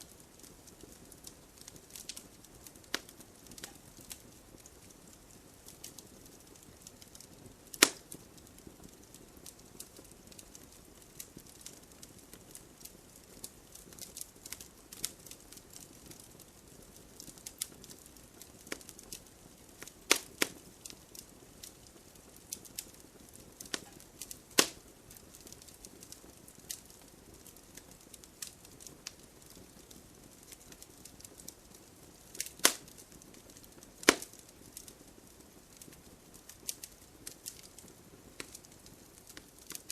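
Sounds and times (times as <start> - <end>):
burning logs popping: 0.0 - 39.9
wood fire crackling: 0.0 - 39.9.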